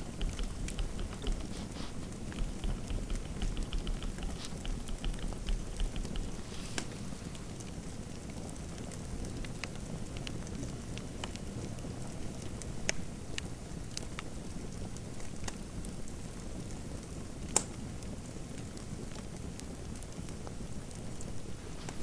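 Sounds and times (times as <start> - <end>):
fire popping: 0.0 - 10.3
fireplace fire crackling: 0.0 - 22.0.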